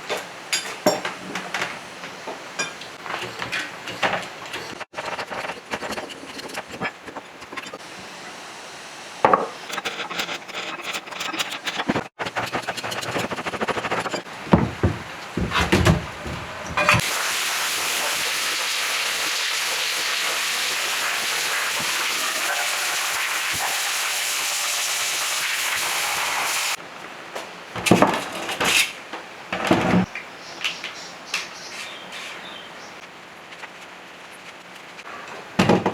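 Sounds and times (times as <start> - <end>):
steady hiss: 13.0 - 26.8
metal tools knocking and clicking: 16.7 - 17.0.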